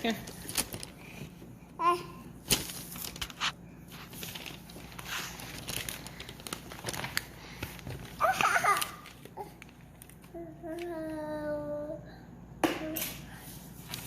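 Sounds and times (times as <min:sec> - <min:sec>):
crinkling and rustling: 0:00.0 - 0:01.6, 0:02.4 - 0:11.2, 0:13.7 - 0:14.0.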